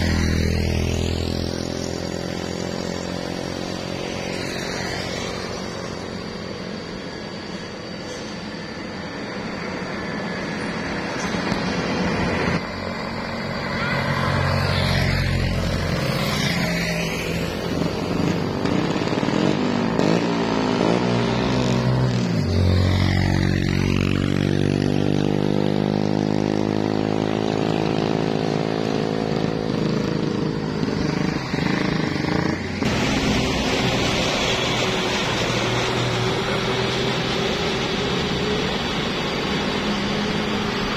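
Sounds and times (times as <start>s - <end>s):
heavy truck engines climbing: 27.0s - 40.9s.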